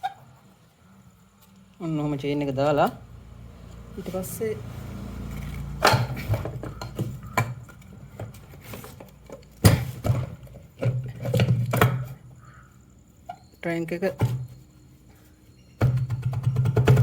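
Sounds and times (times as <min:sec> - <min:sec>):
metal engine parts knocking: 0:05.8 - 0:08.6, 0:15.8 - 0:17.0.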